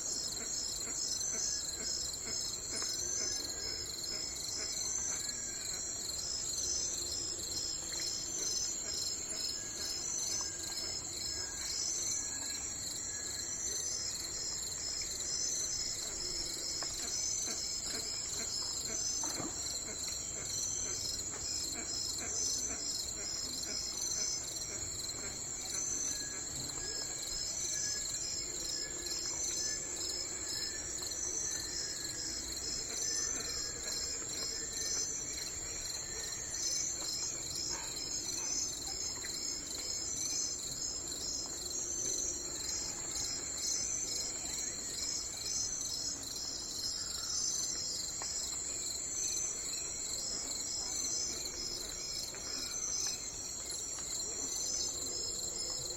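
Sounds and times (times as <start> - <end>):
high-pitched insect chorus: 0.0 - 55.9.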